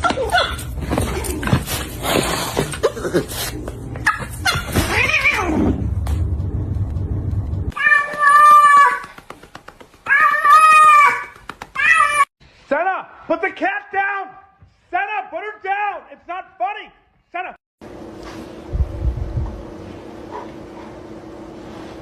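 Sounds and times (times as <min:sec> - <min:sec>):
low rumble: 0:05.4 - 0:07.8, 0:18.7 - 0:19.8
cat yowling: 0:07.7 - 0:09.0
cat meowing: 0:07.8 - 0:08.9.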